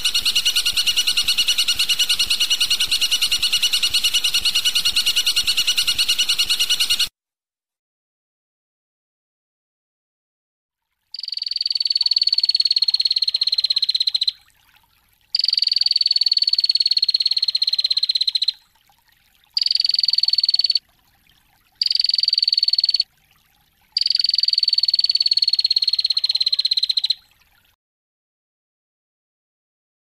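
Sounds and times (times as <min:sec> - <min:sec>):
songbird rattling trill: 0:00.0 - 0:07.1, 0:11.2 - 0:14.4, 0:15.4 - 0:18.6, 0:19.6 - 0:20.8, 0:21.8 - 0:23.0, 0:24.0 - 0:27.2.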